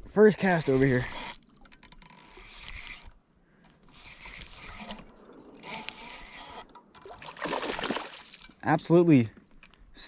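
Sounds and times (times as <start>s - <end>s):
fishing reel cranking: 0.4s - 3.2s, 3.8s - 6.8s.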